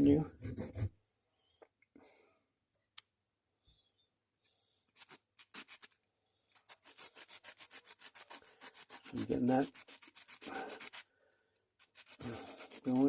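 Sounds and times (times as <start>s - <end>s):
metal part rubbed on abrasive: 11.8s - 13.0s.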